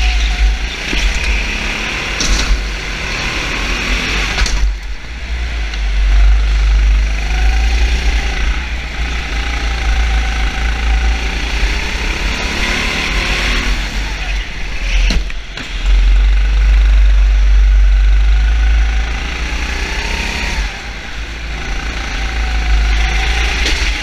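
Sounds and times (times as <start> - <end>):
car engines running: 0.0 - 24.0.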